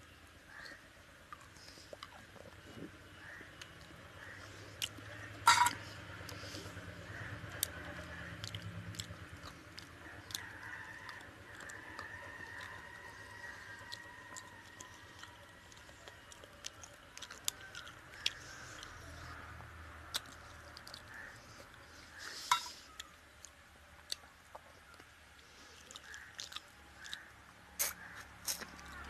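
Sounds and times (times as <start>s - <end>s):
person chewing food: 0.5s - 29.0s
mouth smacks and clicks: 25.8s - 29.0s.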